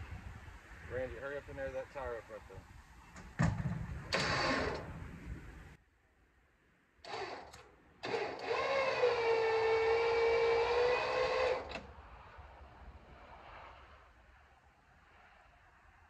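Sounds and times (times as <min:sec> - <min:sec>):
electric air compressor humming: 0:07.1 - 0:11.8.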